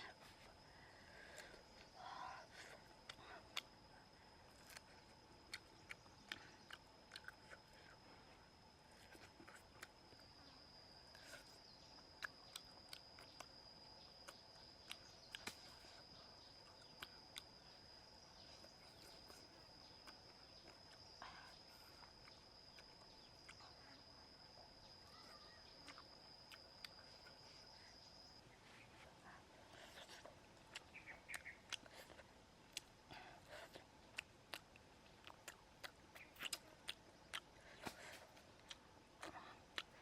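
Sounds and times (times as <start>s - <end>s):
person chewing food: 1.2s - 13.6s, 14.2s - 17.8s, 18.6s - 24.0s, 25.8s - 28.2s, 28.9s - 40.0s
high-pitched insect drone: 8.9s - 28.5s.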